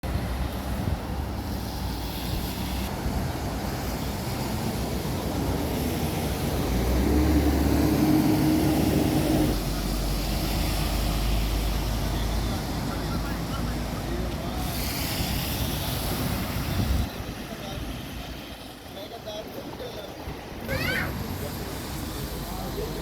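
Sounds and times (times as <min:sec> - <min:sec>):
road noise: 0:00.0 - 0:23.0
vehicle engine: 0:00.0 - 0:23.0.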